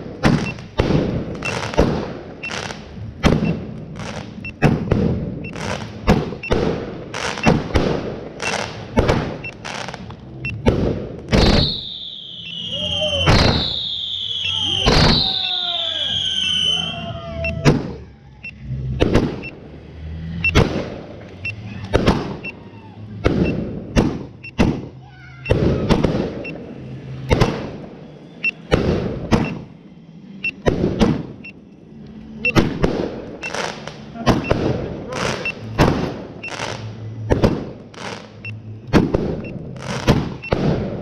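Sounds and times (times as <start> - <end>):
firework bangs with echo: 0.0 - 16.8, 19.0 - 19.5, 21.9 - 22.4, 23.2 - 26.6, 27.3 - 27.8, 28.6 - 29.7, 30.7 - 31.4, 32.5 - 41.0.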